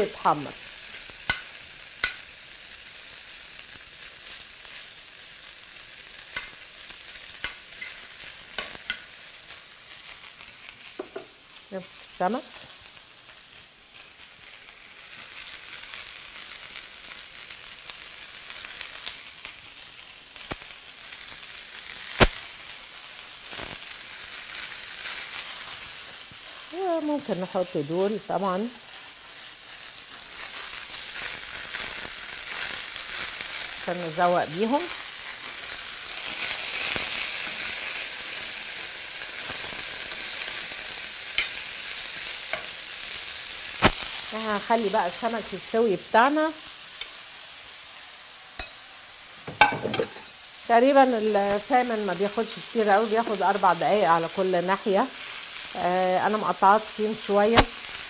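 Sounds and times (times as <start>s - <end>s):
fish sizzling in a frying pan: 0.0s - 58.0s
mushrooms frying: 0.0s - 58.0s
sharp pops: 22.2s - 22.4s, 43.8s - 44.1s, 57.6s - 57.8s.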